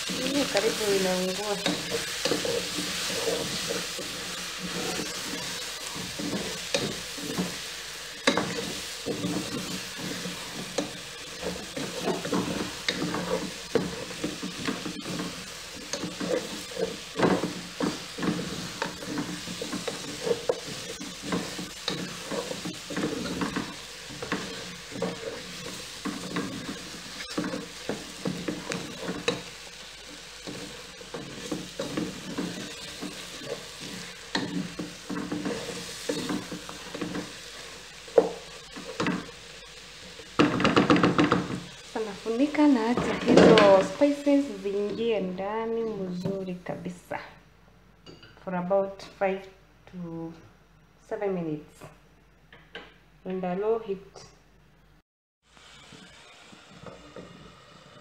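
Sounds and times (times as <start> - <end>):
wooden spoon scraping a pot: 0.0 - 45.1
food sizzling in a pot: 0.0 - 50.3, 55.4 - 58.0.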